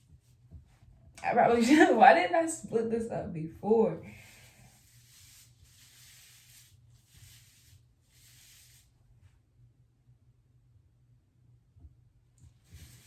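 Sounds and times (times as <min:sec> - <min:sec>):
hands rubbing hair: 0:04.1 - 0:09.0, 0:12.5 - 0:13.0.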